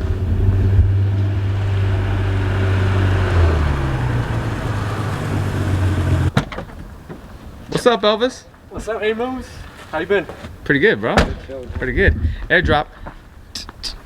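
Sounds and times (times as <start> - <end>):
car engine drone: 0.0 - 6.4
road noise: 0.0 - 11.8.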